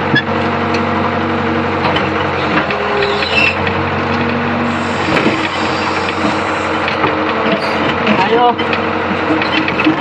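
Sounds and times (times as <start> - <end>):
excavator diesel engine running: 0.0 - 10.0.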